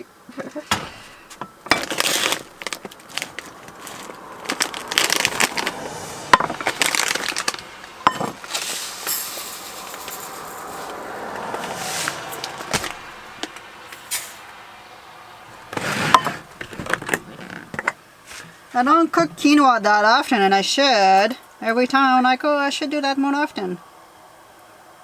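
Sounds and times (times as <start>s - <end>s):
rattling hiss: 0.0s - 25.0s
cookware and packaging handled: 0.4s - 11.0s, 11.6s - 14.2s, 15.5s - 18.7s.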